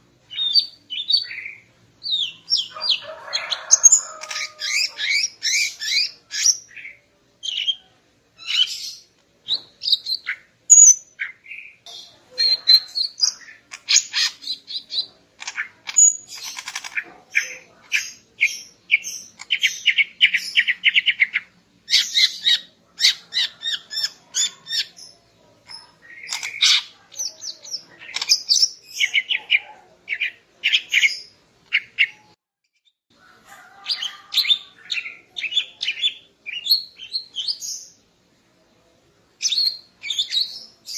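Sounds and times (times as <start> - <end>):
bird calling with chirps and trills: 0.3 - 32.4.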